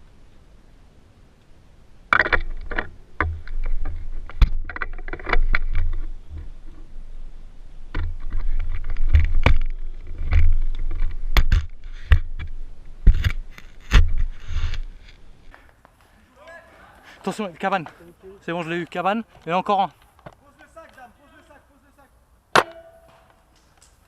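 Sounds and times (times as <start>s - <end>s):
microphone handling knocks and clicks: 2.1s - 6.9s, 7.9s - 15.2s.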